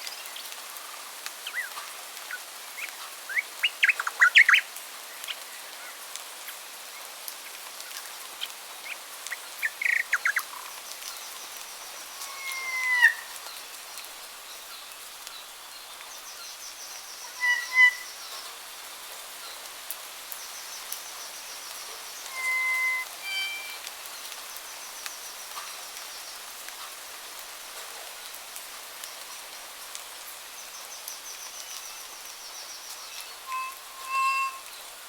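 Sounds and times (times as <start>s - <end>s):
background hiss: 0.0s - 35.0s
wild birds calling: 1.4s - 4.7s, 8.8s - 13.5s, 17.1s - 18.5s, 20.6s - 23.8s
high bird trills: 9.6s - 10.7s, 12.1s - 13.3s, 17.2s - 18.2s, 21.4s - 23.9s, 32.9s - 34.8s.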